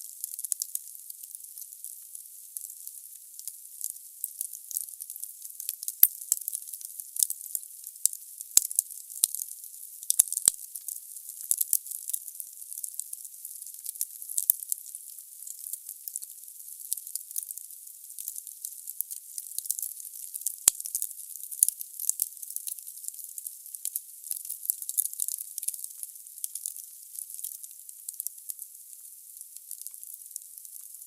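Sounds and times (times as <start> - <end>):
logs crackling in fireplace: 5.6 - 7.3, 10.1 - 10.5, 29.6 - 31.0.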